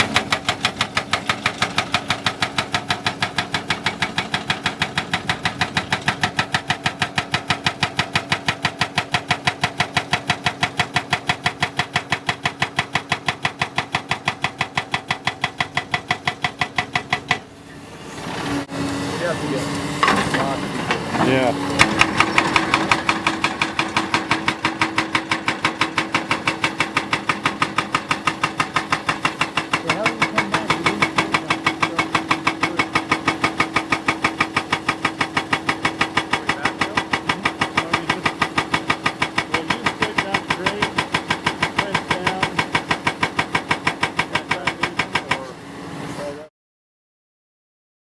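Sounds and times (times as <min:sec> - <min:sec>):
excavator engine humming: 0:00.0 - 0:46.4
hydraulic rock breaker hammering rock: 0:00.0 - 0:46.5.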